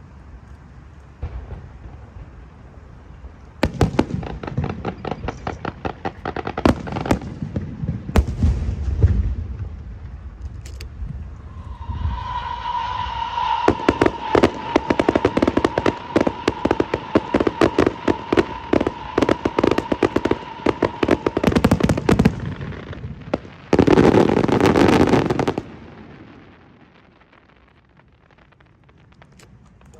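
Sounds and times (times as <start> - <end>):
crackling rush: 0.0 - 29.9
fireworks bangs and crackles: 1.0 - 29.9
high whistle: 11.4 - 21.9.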